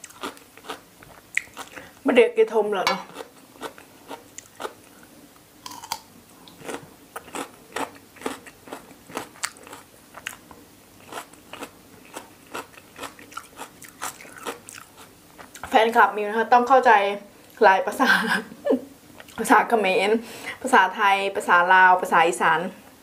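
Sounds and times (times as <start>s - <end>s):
close chewing and crunching: 0.0s - 2.0s, 3.0s - 5.0s, 5.6s - 15.8s.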